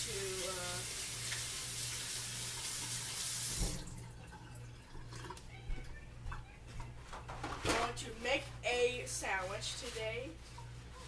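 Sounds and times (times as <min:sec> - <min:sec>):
tap running water into sink: 0:00.0 - 0:05.4
low thump of tap turning off: 0:03.5 - 0:04.0.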